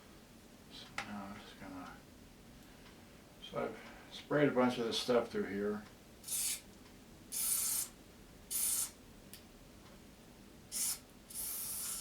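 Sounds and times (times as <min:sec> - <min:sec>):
aerosol spray can hissing: 0:06.3 - 0:06.6, 0:07.3 - 0:07.9, 0:08.5 - 0:09.0, 0:10.7 - 0:12.0.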